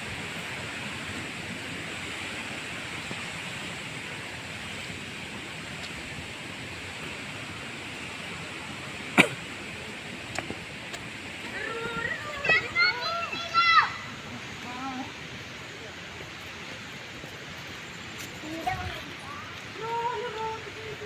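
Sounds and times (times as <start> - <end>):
waterfall rushing: 0.0 - 18.2
sharp knock: 9.2 - 9.4.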